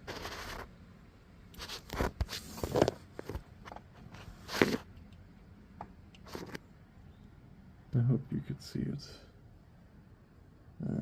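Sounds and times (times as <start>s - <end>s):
crunching and scraping: 0.0s - 0.7s, 1.6s - 4.9s, 6.2s - 6.6s.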